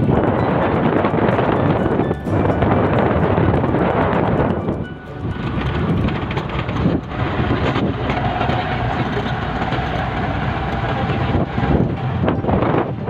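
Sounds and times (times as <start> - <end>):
rattling road noise: 0.0 - 13.0
wind noise: 0.0 - 13.0
small engine running: 2.6 - 12.4.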